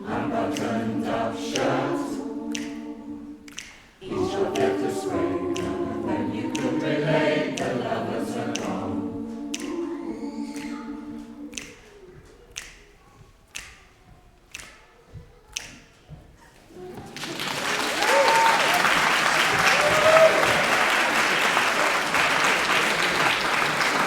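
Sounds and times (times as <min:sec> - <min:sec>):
choir singing in harmony: 0:00.0 - 0:11.9
sharp clicks keeping time: 0:00.0 - 0:14.9.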